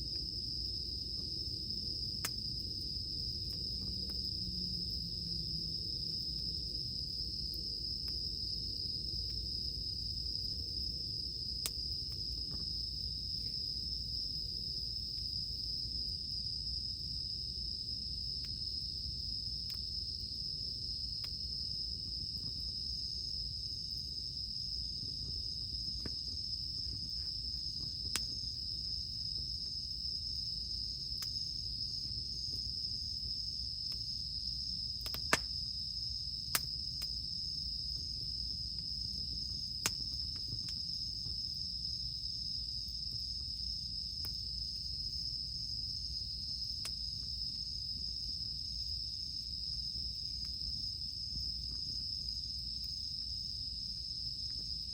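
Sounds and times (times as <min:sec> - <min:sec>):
cicadas chorus: 0:00.0 - 0:54.9
campfire wood popping: 0:00.1 - 0:04.4, 0:05.1 - 0:15.8, 0:24.8 - 0:30.0, 0:30.8 - 0:32.9, 0:34.8 - 0:35.8, 0:36.4 - 0:41.5.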